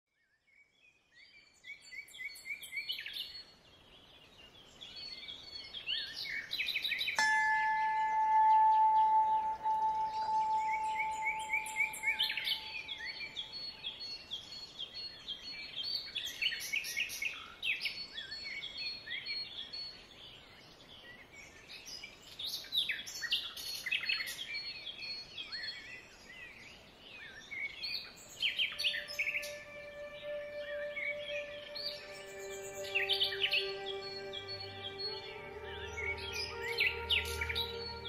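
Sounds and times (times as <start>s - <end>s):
songbirds chirping and twittering: 0.1s - 38.0s
bell-like ringing tone: 7.2s - 13.4s.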